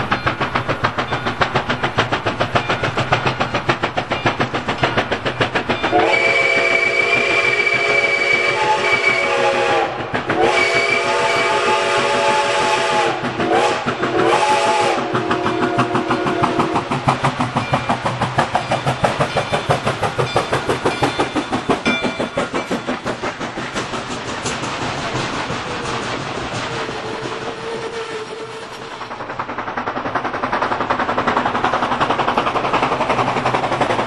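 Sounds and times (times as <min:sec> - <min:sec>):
rhythmic beat of train running: 0:00.0 - 0:34.0
train whistle blasts: 0:05.9 - 0:16.8, 0:27.0 - 0:28.8.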